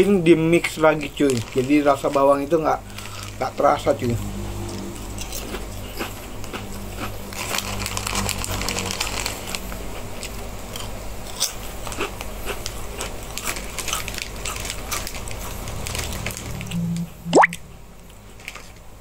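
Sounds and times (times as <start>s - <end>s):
person chewing crunchy snack: 5.1s - 16.8s.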